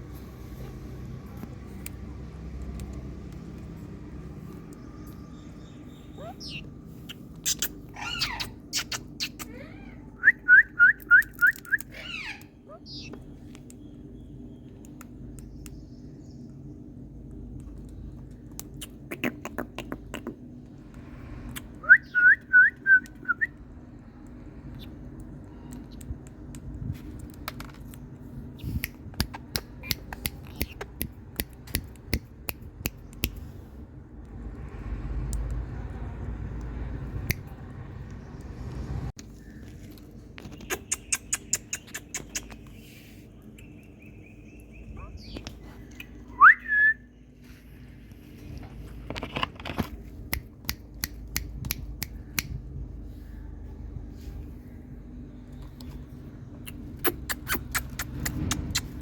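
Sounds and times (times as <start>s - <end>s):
parrot making sharp clicks: 28.8s - 33.4s, 56.6s - 59.0s
parrot whistle rising: 46.3s - 47.1s.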